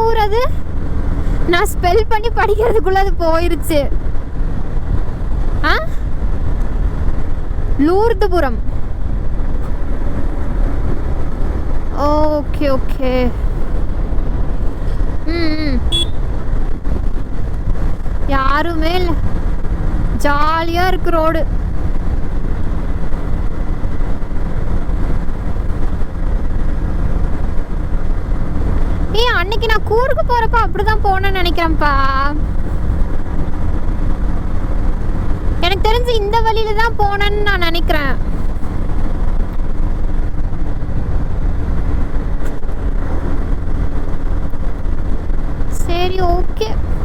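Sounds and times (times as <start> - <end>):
motorcycle engine rumbling: 0.0 - 47.0
road noise: 0.0 - 47.0
wind noise: 0.0 - 47.0.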